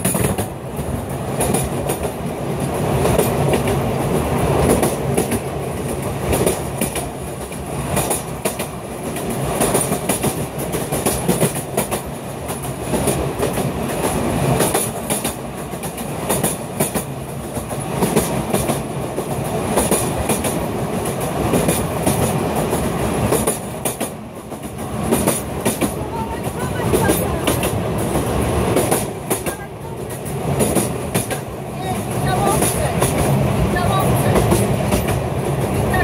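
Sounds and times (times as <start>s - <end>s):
train rumbling and rattling: 0.0s - 36.0s
wheels clicking over rail joints: 0.0s - 36.0s.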